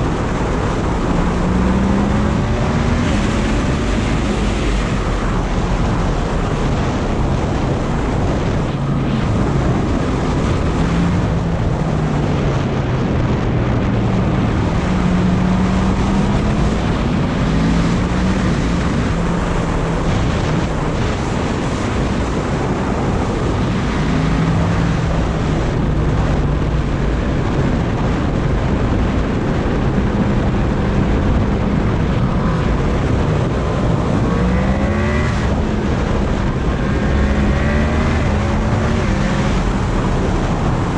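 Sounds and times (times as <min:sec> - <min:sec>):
motorcycle engine revving: 0:00.0 - 0:40.9
wind buffeting microphone: 0:00.0 - 0:40.9.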